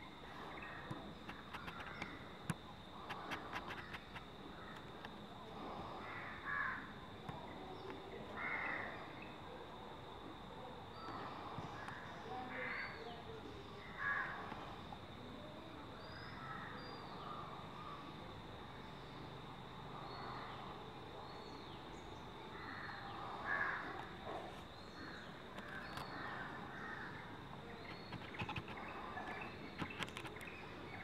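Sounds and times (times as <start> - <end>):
steady high-pitched hum: 0.0 - 31.0
birds calling: 22.7 - 31.0.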